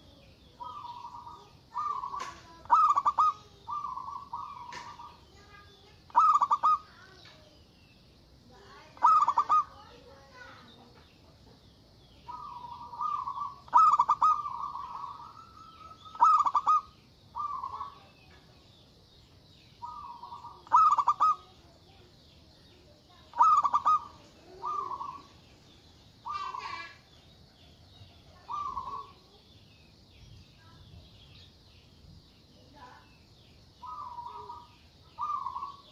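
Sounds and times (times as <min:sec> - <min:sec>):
dove cooing: 0:00.0 - 0:07.2, 0:08.9 - 0:10.0, 0:12.2 - 0:18.3, 0:19.8 - 0:22.1, 0:23.1 - 0:25.4, 0:26.2 - 0:27.0, 0:27.7 - 0:29.2, 0:33.8 - 0:35.9
faint high chirping: 0:00.0 - 0:35.9.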